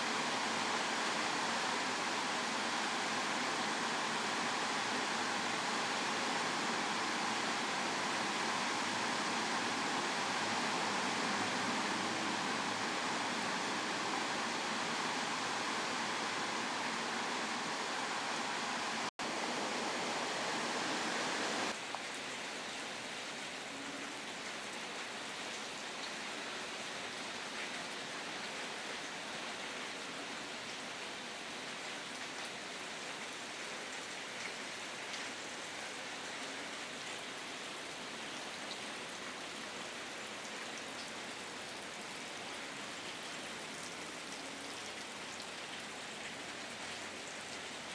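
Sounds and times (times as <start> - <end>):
heavy rain pouring: 0.0 - 21.8.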